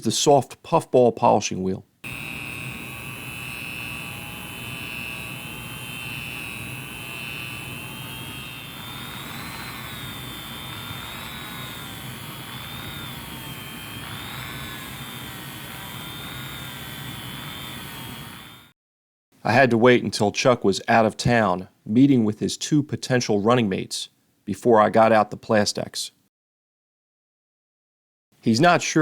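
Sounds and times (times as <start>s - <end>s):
rotary tool motor whine: 2.0s - 18.7s.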